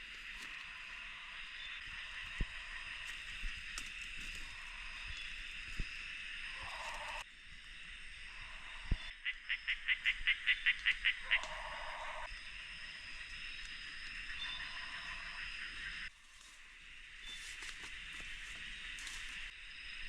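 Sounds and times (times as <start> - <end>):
low buzzing calls: 0.0 - 7.3, 8.2 - 13.3
high-pitched insect drone: 0.0 - 20.0.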